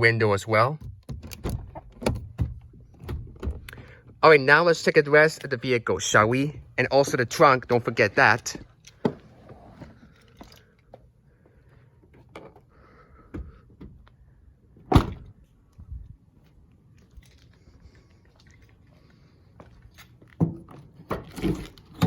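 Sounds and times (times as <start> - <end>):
car door being shut: 14.9 - 15.3.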